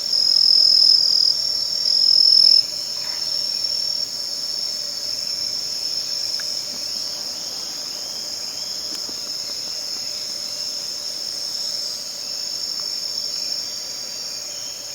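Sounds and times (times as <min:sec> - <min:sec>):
crickets chirring: 0:00.0 - 0:14.9.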